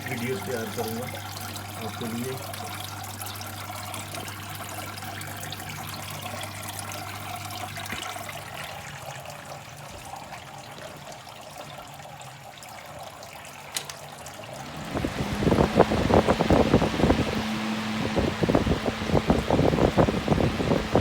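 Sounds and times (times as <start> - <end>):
low motor hum: 0.0 - 10.0, 14.2 - 21.0
water trickling and splashing: 0.0 - 21.0.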